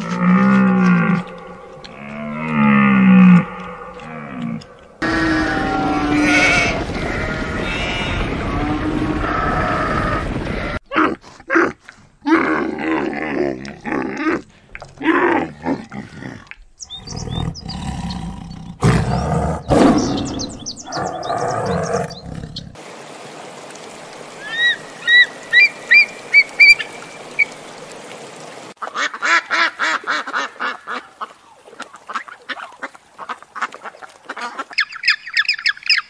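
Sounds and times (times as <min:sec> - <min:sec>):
tiger roaring and growling: 0:00.0 - 0:06.4, 0:15.0 - 0:22.8.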